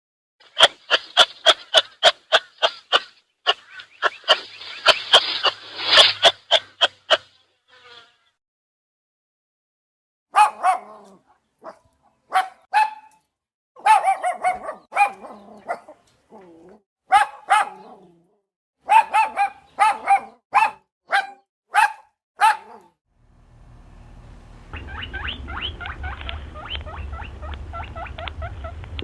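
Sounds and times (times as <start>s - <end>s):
dog barking: 10.3s - 13.2s, 13.8s - 16.0s, 17.1s - 18.1s, 18.8s - 23.0s.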